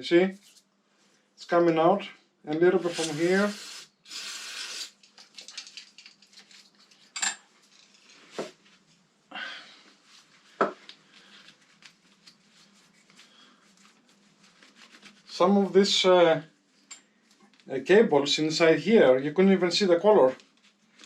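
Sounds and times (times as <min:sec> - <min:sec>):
compressed air blast: 0:02.8 - 0:05.0.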